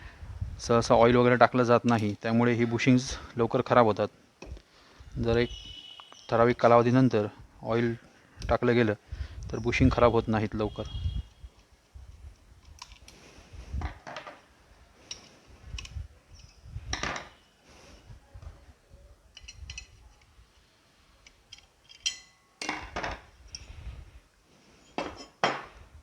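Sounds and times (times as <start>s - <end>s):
metal parts clinking: 19.3s - 20.3s, 21.2s - 23.7s.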